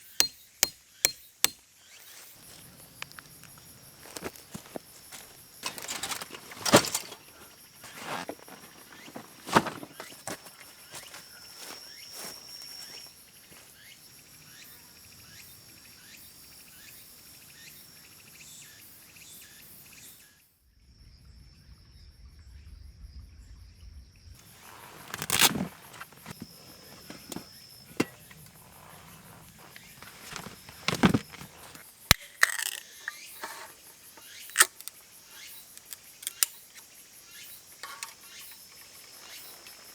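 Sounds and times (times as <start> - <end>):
insects chirring: 0.0 - 19.9, 24.4 - 39.9
rustling handling noise: 1.4 - 13.7, 24.4 - 35.0.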